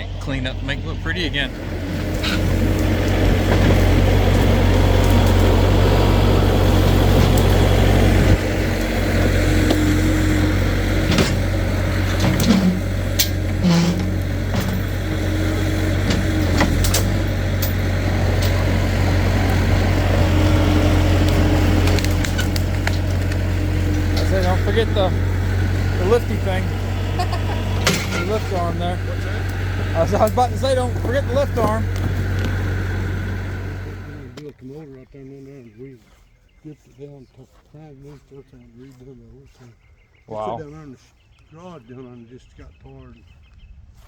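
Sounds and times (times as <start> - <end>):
vehicle engine running at low revs: 0.0 - 36.3
knocks and rattles: 1.3 - 34.1.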